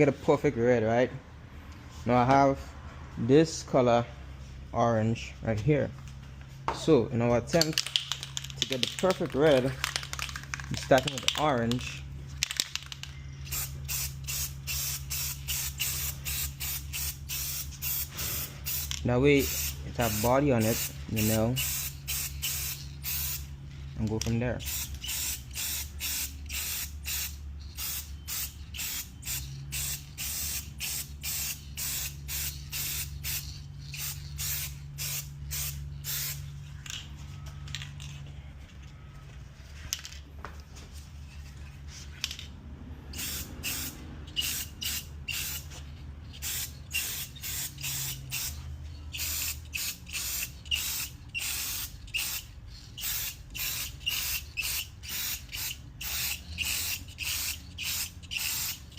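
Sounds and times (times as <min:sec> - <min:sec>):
spray-paint can hissing: 0:12.6 - 0:23.5, 0:24.7 - 0:36.5, 0:43.1 - 0:58.9.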